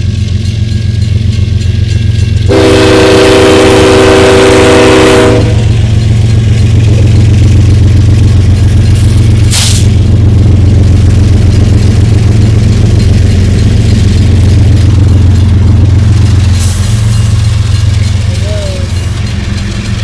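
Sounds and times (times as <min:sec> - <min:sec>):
diesel engine rumble: 0:00.0 - 0:20.0
locomotive air horn chord: 0:02.5 - 0:05.8.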